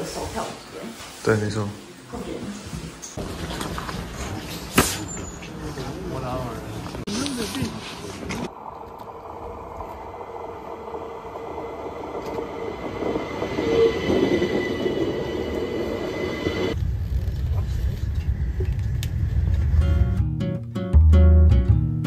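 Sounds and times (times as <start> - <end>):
train brakes squealing: 5.0 - 5.6, 12.4 - 16.8
low steady train rumble: 5.5 - 20.3.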